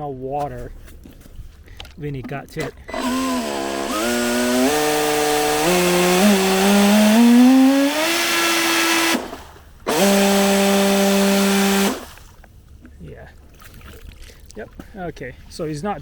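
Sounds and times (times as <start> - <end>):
jet ski motor whine: 2.9 - 12.2.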